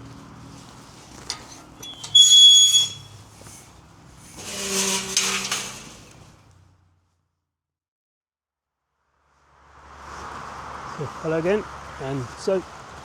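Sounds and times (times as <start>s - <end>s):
high-pitched whistle: 1.9s - 3.0s
vehicle passing: 9.4s - 13.0s.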